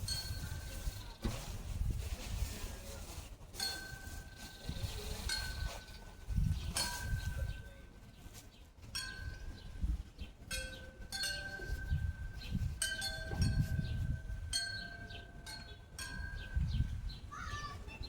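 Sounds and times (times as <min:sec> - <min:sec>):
metal wind chimes ringing: 0:00.0 - 0:01.2, 0:03.6 - 0:07.9, 0:08.9 - 0:17.2.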